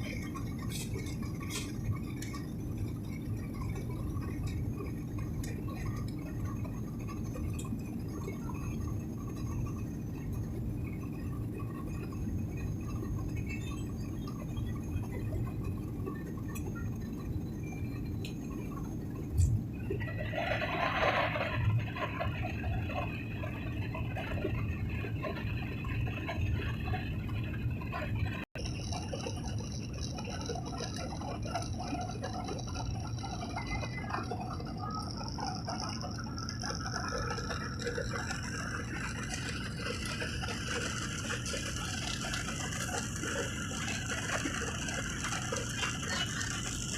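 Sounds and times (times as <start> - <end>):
airliner cabin drone: 0.0 - 46.9.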